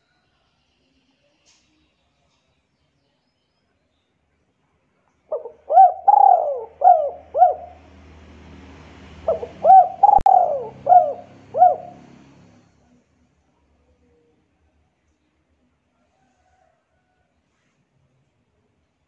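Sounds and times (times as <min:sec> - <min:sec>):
bird cooing: 0:05.3 - 0:08.0, 0:09.2 - 0:12.6.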